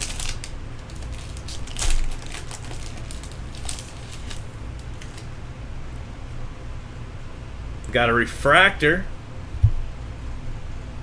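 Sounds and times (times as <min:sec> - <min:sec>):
foil wrapper crinkling: 0:00.0 - 0:05.3
trading cards rustling: 0:00.0 - 0:05.3
steady low hum: 0:00.0 - 0:11.0.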